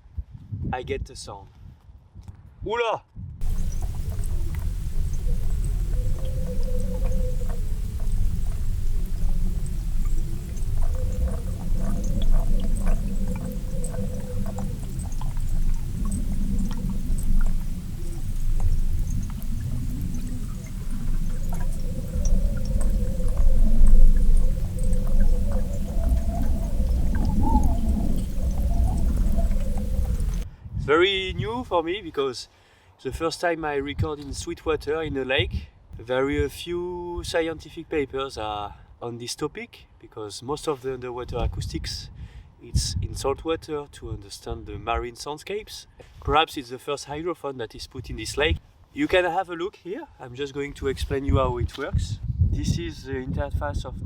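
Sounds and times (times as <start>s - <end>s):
small clicks and crackles: 3.4s - 30.4s
wavering hum: 3.4s - 30.4s
underwater low rumble: 3.4s - 30.5s.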